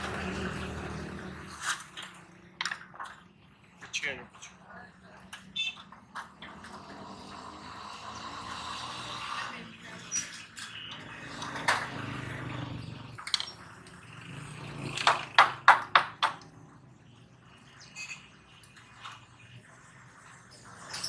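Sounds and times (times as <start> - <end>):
sharp knocks: 15.0 - 16.4.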